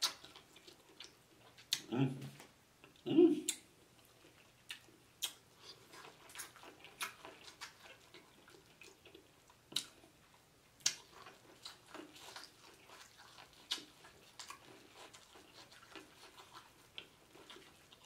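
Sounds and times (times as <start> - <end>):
chewing corn on the cob: 0.0 - 18.0
wet mouth smacks: 4.7 - 5.4.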